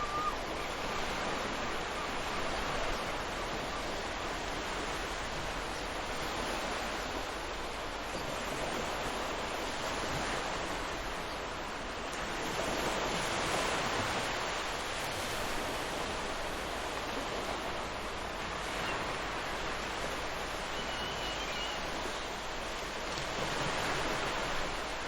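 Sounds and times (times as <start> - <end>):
ocean surf washing onto beach: 0.0 - 25.0.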